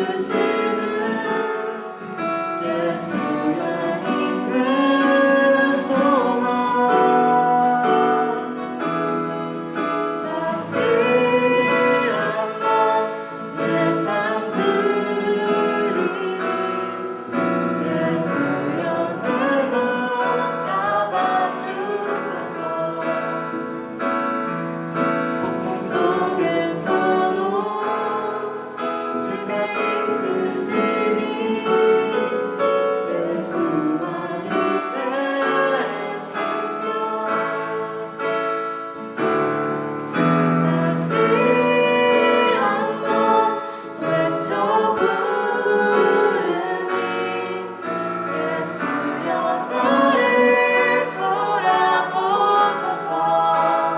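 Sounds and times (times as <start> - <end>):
group of voices singing: 0.0 - 24.4, 25.0 - 53.9
piano accompaniment: 0.0 - 53.9.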